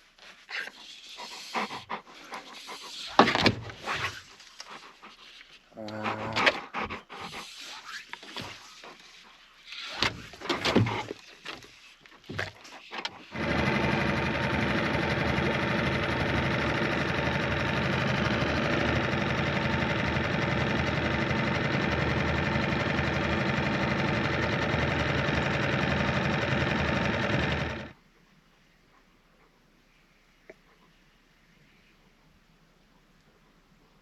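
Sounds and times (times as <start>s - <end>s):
outboard motor running: 13.2s - 28.0s.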